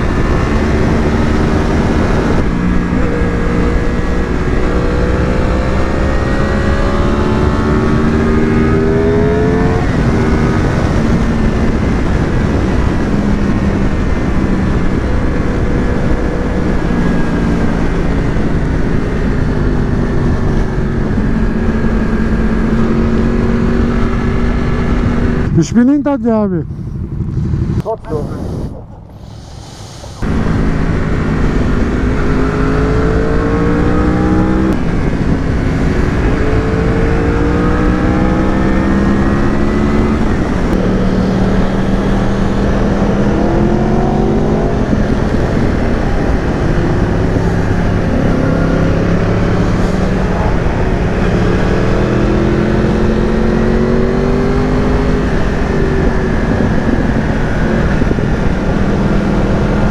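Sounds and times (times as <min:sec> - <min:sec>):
motorcycle engine accelerating: 0:00.0 - 0:59.9
wind noise: 0:00.0 - 0:59.9.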